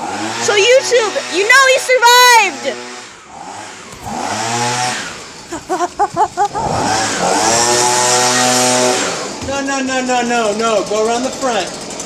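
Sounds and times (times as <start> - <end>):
small petrol engine revving: 6.6 - 9.4.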